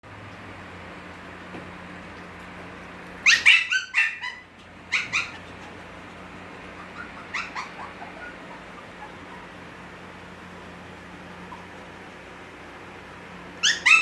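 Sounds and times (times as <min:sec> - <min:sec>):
puppies yipping: 0:03.1 - 0:12.2, 0:13.6 - 0:14.0.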